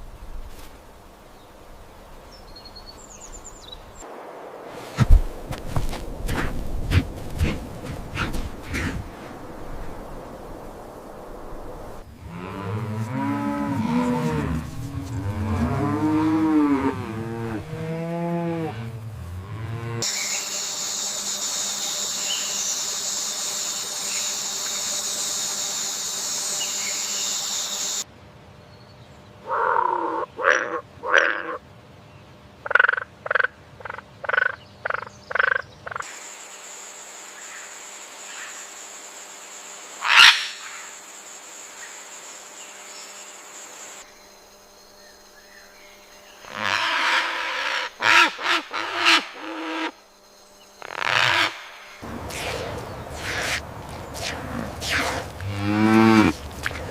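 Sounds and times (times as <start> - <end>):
high insect-like hiss: 0.0 - 28.1, 34.3 - 56.9
cattle lowing: 5.0 - 9.2, 12.2 - 20.0, 52.0 - 56.9
short croaking calls: 29.4 - 31.6, 40.0 - 40.9, 46.4 - 50.0, 50.8 - 56.9.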